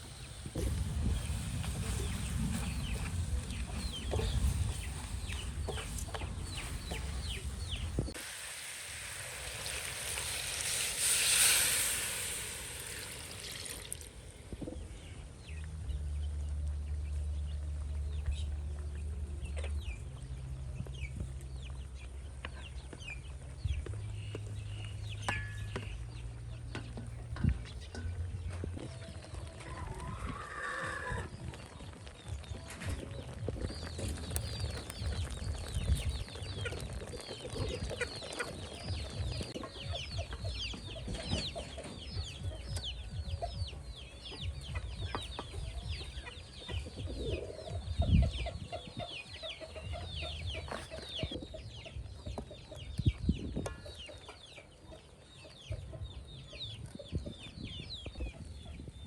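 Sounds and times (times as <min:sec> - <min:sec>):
birds chirping: 0:00.0 - 0:08.2, 0:08.9 - 0:59.0.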